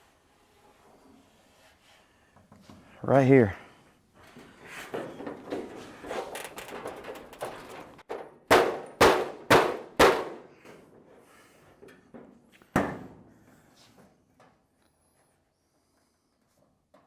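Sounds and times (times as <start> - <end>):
metal panel knocks and rattles: 5.0 - 10.4
hand slapping sheet metal: 8.5 - 10.5.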